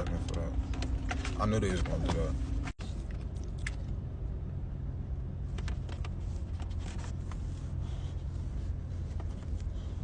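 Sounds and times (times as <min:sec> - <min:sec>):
car cabin rumble: 0:00.0 - 0:03.2.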